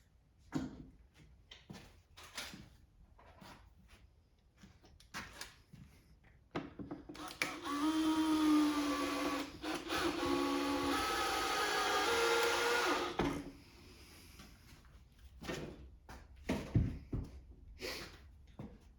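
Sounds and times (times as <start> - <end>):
small power tool motor whirring: 7.2 - 13.4.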